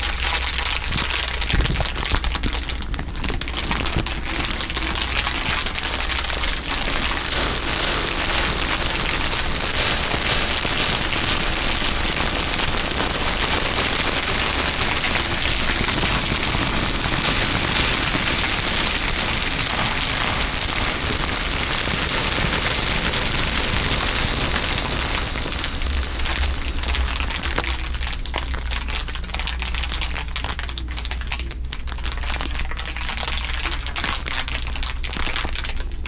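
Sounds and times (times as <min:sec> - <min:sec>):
dense crinkling crackle: 0:00.0 - 0:36.0
steady low rumble: 0:04.6 - 0:29.4.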